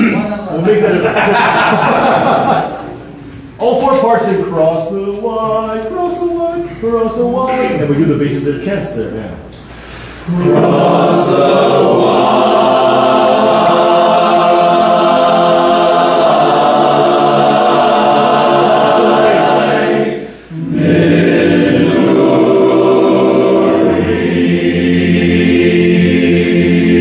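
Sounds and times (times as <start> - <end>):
men's a cappella chorus singing: 10.2 - 27.0.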